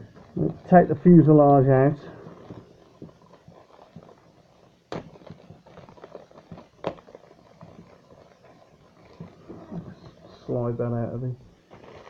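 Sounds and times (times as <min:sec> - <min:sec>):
packaging crackling rustles: 0:00.0 - 0:12.0.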